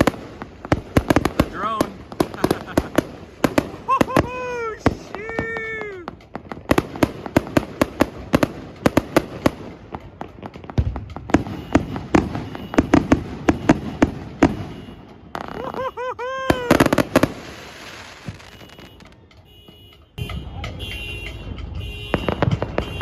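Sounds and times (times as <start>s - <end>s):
firecrackers banging: 0.0s - 23.0s
warbling firework whistle: 11.4s - 19.2s.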